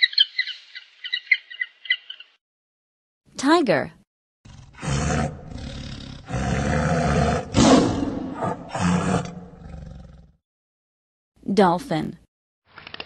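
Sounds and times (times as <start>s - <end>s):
tiger roaring: 4.5s - 10.4s.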